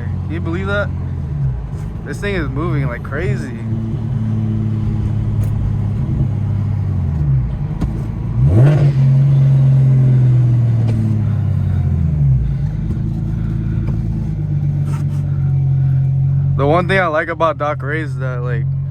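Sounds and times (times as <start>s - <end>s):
car engine drone from inside cabin: 0.0s - 18.9s.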